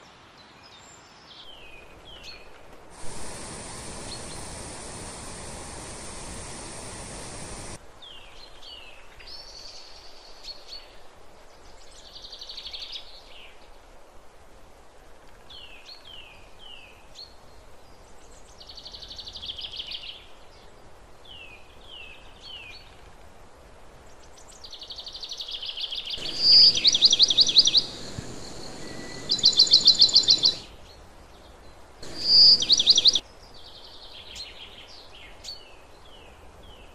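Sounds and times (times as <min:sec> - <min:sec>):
songbird singing: 0:00.4 - 0:11.0, 0:24.2 - 0:36.9
rushing water: 0:03.0 - 0:07.8, 0:26.2 - 0:30.7, 0:32.0 - 0:33.2.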